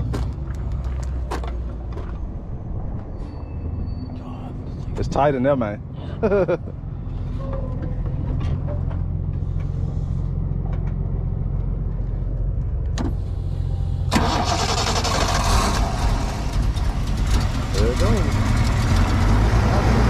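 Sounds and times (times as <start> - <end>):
low rumble: 5.8 - 20.0
engine starting and running: 8.0 - 20.0.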